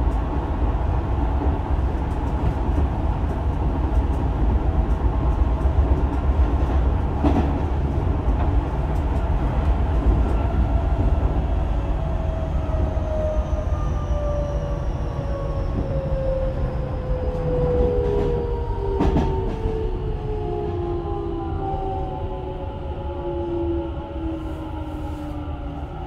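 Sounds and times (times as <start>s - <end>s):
train wheels rumbling on rail: 0.0s - 26.0s
rail joint clicks: 1.9s - 10.6s, 17.3s - 19.8s.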